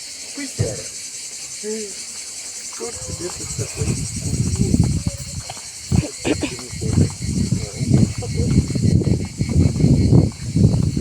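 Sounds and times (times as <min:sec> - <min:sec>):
insects chirring: 0:00.0 - 0:11.0
wind and handling on microphone: 0:02.8 - 0:11.0.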